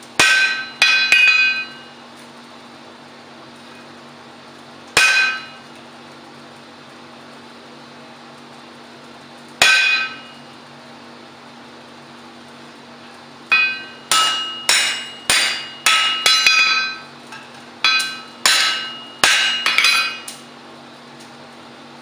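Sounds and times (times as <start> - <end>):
hammer striking steel on anvil: 0.2 - 1.9, 5.0 - 5.6, 9.6 - 10.4, 13.5 - 20.4.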